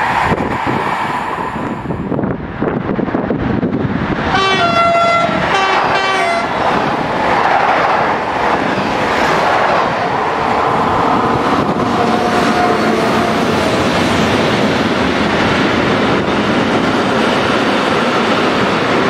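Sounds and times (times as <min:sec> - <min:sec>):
freight train rumble: 0:00.0 - 0:19.0
train horn blasts: 0:04.3 - 0:06.6, 0:11.9 - 0:13.6.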